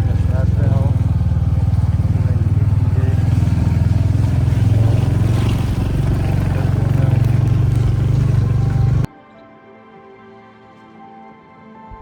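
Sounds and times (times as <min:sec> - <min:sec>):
motorcycle engine droning: 0:00.0 - 0:09.1.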